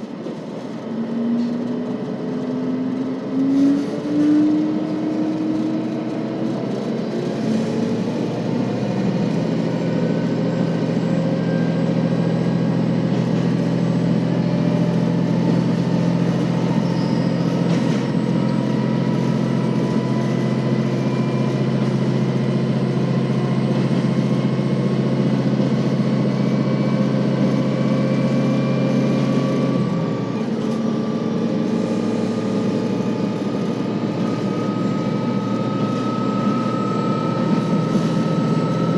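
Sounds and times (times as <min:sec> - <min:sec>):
diesel engine drone: 0:00.0 - 0:38.9
train running rumble: 0:00.0 - 0:38.9
rising whine: 0:00.3 - 0:38.9.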